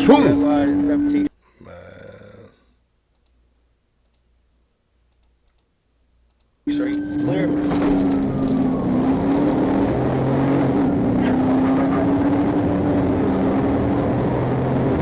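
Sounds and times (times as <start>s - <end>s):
car engine hum: 6.9s - 15.0s.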